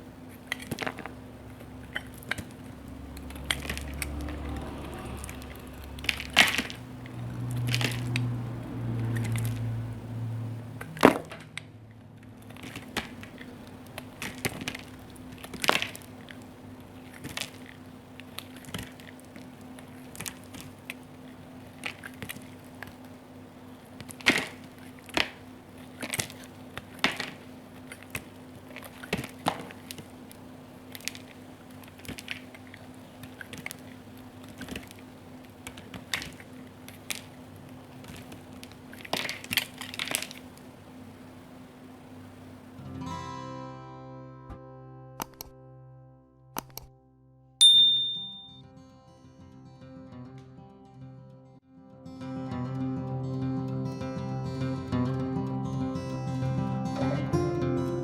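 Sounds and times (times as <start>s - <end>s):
faint low hum: 0.0s - 43.0s.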